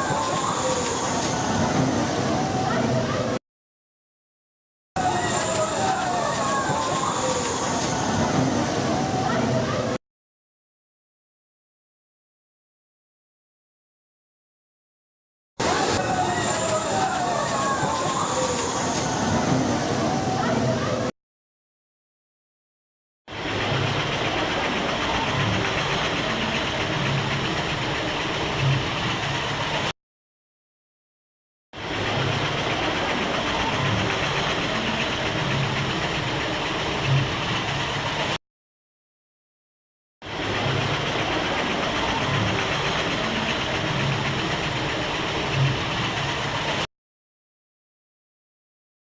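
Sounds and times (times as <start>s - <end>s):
ride machinery running: 23.3s - 29.9s, 31.8s - 38.4s, 40.2s - 46.9s.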